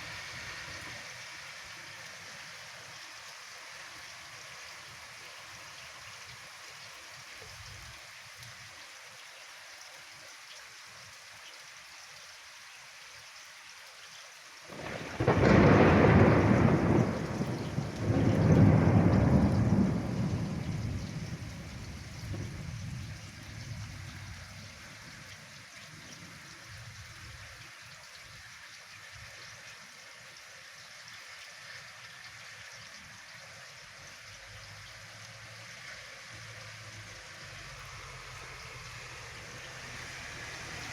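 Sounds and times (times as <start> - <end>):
steady rain: 0.0 - 40.9
thunderclap rumbling: 14.7 - 23.9.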